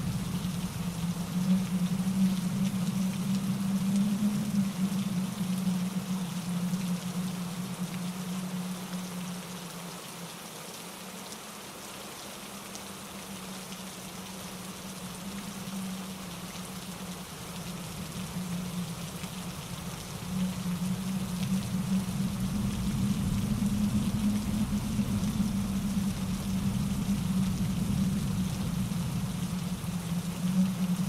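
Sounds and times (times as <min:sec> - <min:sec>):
low rumble: 0:00.0 - 0:06.4, 0:16.2 - 0:31.0
rain pattering on leaves: 0:00.0 - 0:31.0
rushing mountain stream: 0:00.0 - 0:31.0
wind in trees: 0:00.0 - 0:31.0.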